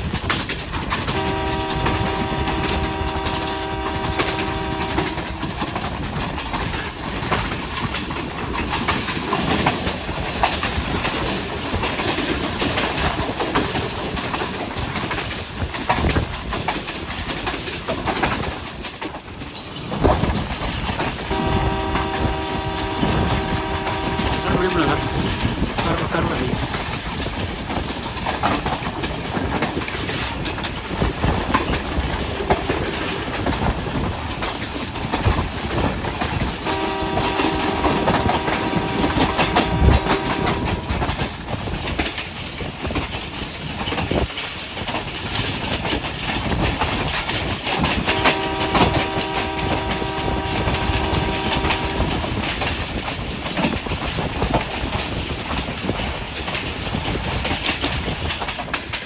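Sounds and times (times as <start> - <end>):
train wheels clattering on rails: 0.0 - 59.0
train horn blasts: 0.9 - 5.9, 21.3 - 26.6, 36.4 - 41.3, 47.8 - 52.7.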